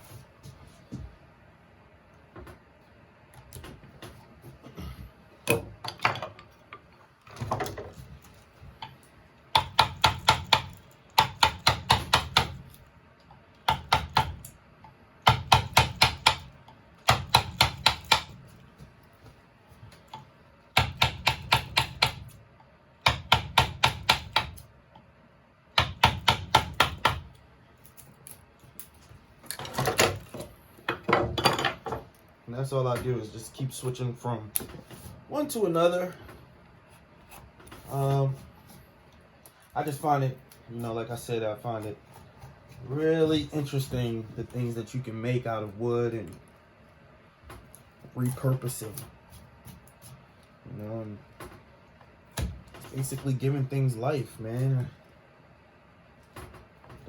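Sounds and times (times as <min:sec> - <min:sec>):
carving tool tapping wood: 0:09.5 - 0:12.7, 0:13.6 - 0:14.5, 0:15.2 - 0:18.4, 0:20.8 - 0:22.3, 0:23.0 - 0:24.6, 0:25.8 - 0:27.2.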